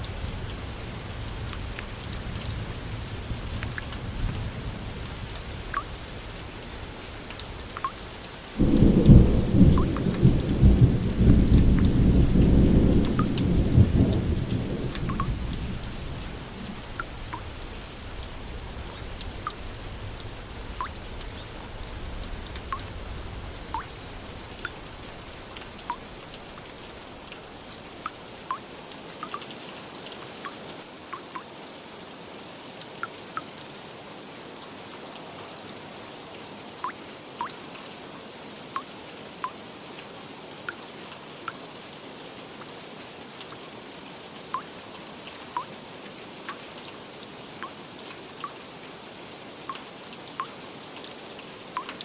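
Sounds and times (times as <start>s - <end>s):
steady rainfall: 0.0s - 52.0s
thunder rumbling: 8.6s - 16.9s.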